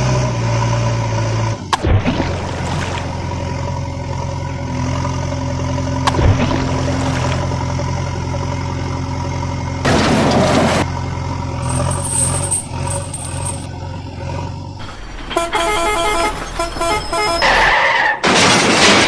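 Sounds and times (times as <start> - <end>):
engine idling: 1.6 - 17.4.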